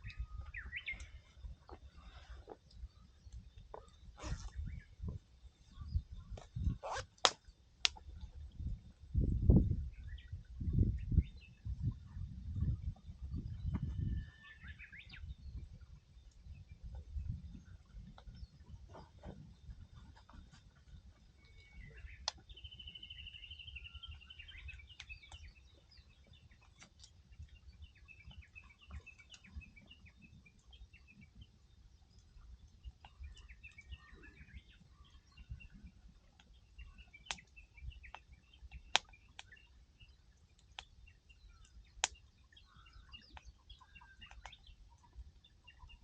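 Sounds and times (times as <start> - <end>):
small birds chirping: 0.0 - 8.0, 9.9 - 46.0
campfire crackling and popping: 6.2 - 9.1, 24.4 - 29.6, 30.5 - 34.0, 35.2 - 45.8.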